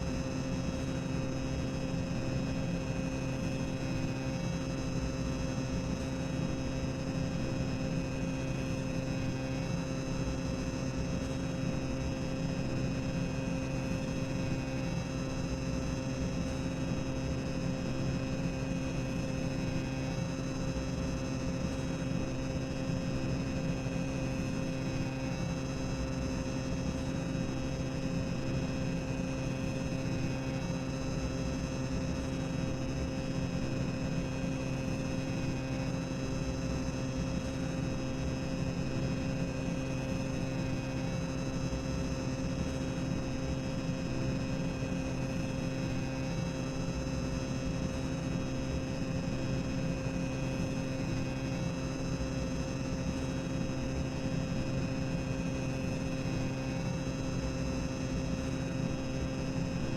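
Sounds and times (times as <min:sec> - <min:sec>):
constant low hum: 0:00.0 - 0:59.9.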